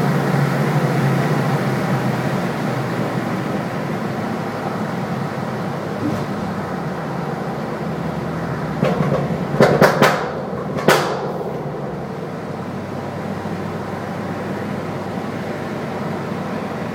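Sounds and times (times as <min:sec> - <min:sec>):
car engine: 0:00.0 - 0:16.9
road noise: 0:00.0 - 0:16.9
exhaust popping and banging: 0:06.0 - 0:07.2, 0:08.4 - 0:13.0.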